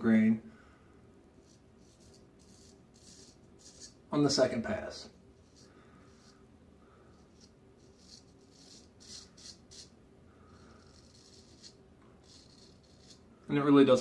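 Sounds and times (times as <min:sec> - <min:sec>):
straight razor scraping stubble: 0:01.4 - 0:04.0, 0:07.1 - 0:13.3.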